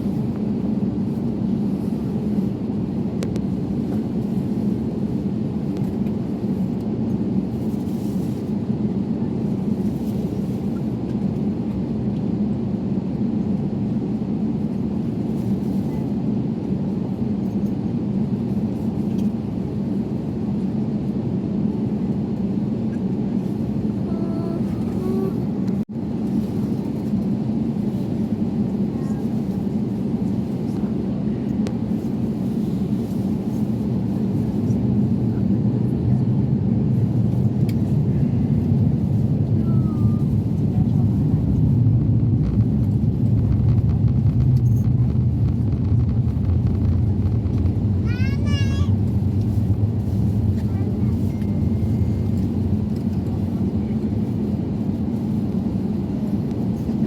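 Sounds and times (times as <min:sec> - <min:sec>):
low vehicle rumble: 0:36.0 - 0:53.9.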